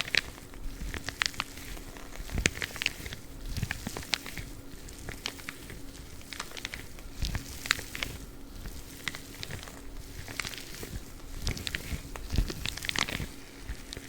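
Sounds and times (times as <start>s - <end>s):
rubber gloves crackling: 0.0s - 14.0s.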